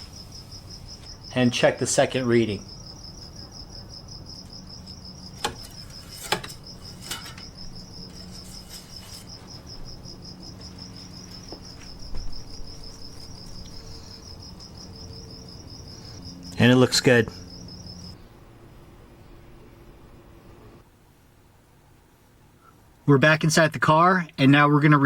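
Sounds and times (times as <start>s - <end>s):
cricket trilling: 0.0s - 18.2s
low steady hum: 0.0s - 24.4s.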